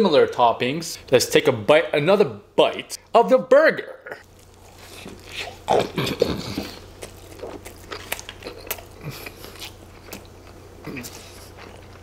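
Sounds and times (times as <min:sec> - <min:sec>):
person chewing food: 0:04.2 - 0:12.0
wet smacking mouth sounds: 0:04.5 - 0:12.0.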